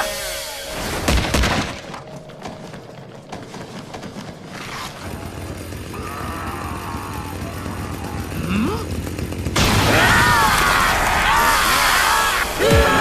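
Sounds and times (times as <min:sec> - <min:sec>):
cartoon chainsaw starting up: 0:04.6 - 0:13.0.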